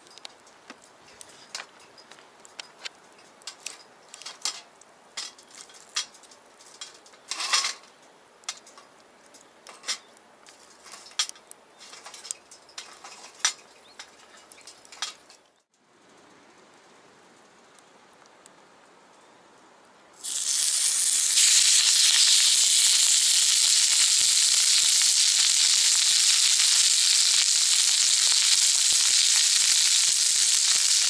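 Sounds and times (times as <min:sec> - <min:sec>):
faint steady hiss: 0:00.0 - 0:31.0
metal utensils scraping skillet: 0:02.6 - 0:07.9, 0:09.7 - 0:15.4.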